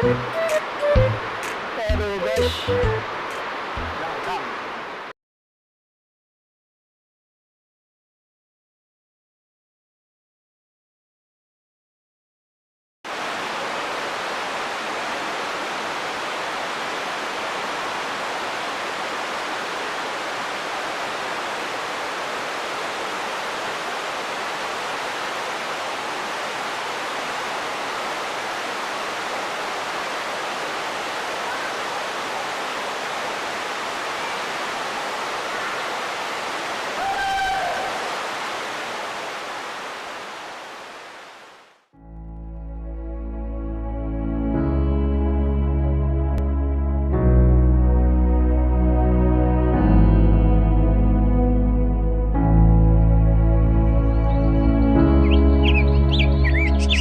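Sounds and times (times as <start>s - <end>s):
waterfall rushing: 0.0s - 5.1s, 13.1s - 41.8s, 55.1s - 57.0s.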